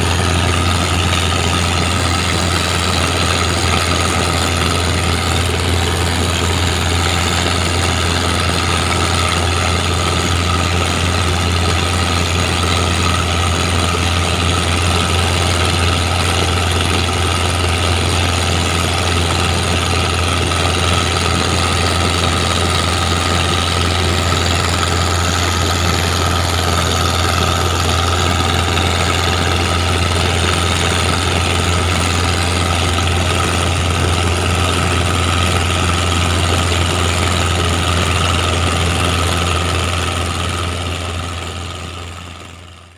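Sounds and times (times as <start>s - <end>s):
diesel boat engine running: 0.0s - 42.9s.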